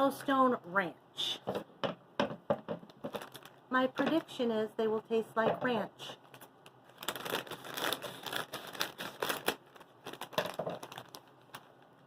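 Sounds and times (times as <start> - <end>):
plastic chip bag crinkling: 2.9 - 4.5, 6.1 - 12.0.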